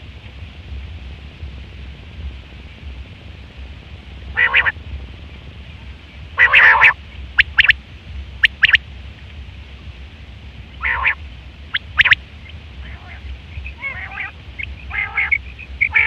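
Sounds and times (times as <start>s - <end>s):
quail calling: 4.4s - 4.7s, 6.4s - 7.8s, 8.4s - 8.8s, 10.8s - 12.2s, 12.8s - 16.0s.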